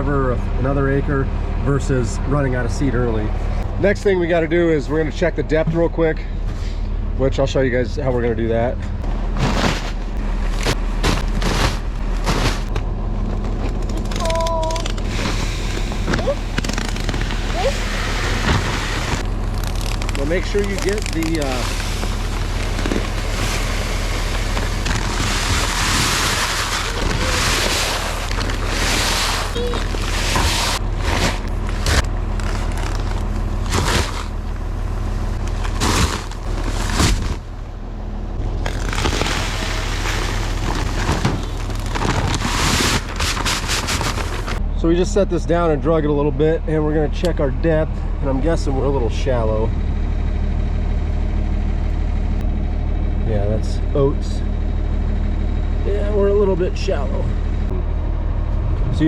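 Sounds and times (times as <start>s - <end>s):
diesel tractor engine idling: 0.0s - 59.0s
drill scraping soil: 15.0s - 34.6s, 35.4s - 37.4s, 38.6s - 44.6s.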